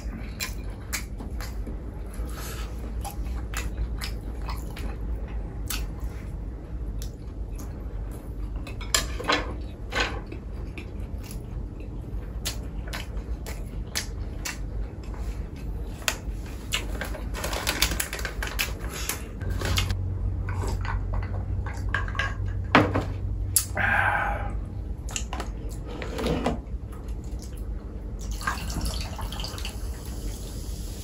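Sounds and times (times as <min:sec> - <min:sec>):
wet chewing: 0:00.0 - 0:06.2.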